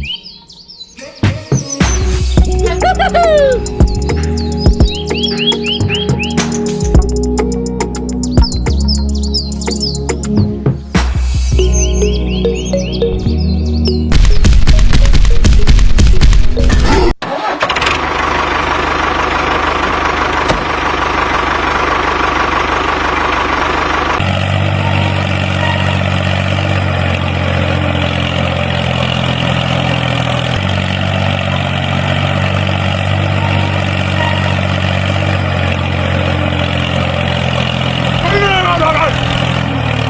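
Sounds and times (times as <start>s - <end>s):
loud music: 1.2s - 16.8s
tractor engine running: 1.8s - 40.0s.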